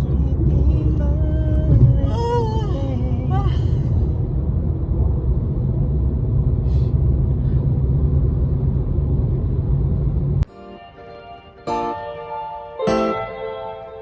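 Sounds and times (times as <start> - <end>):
road rumble inside moving car: 0.0 - 10.5.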